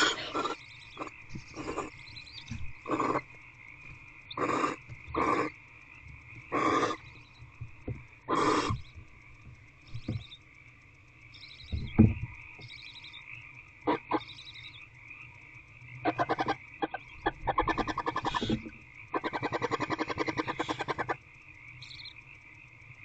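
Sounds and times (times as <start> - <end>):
owls hissing: 0.0 - 2.2, 2.8 - 3.3, 4.3 - 5.6, 6.5 - 7.1, 8.3 - 8.8, 13.9 - 14.3, 16.0 - 21.2.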